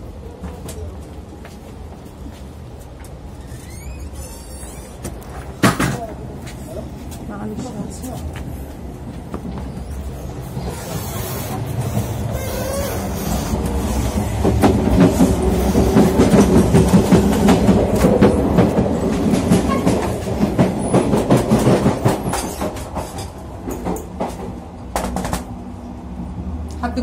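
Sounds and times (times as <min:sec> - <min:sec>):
train rumbling: 0:00.0 - 0:27.0
wheels clacking over rail joints: 0:09.1 - 0:25.6.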